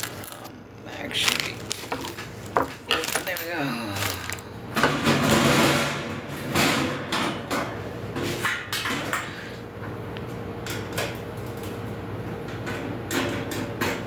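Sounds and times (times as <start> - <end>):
grill parts knocking and clattering: 0.0 - 9.3.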